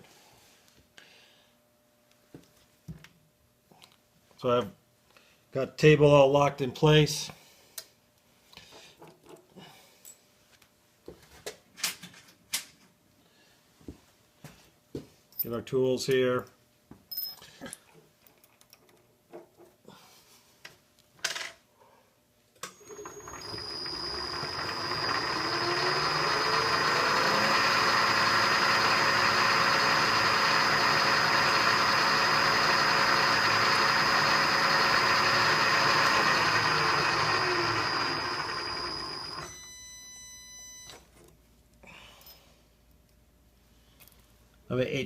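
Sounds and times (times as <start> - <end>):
milling machine spindle whine: 22.8 - 39.6.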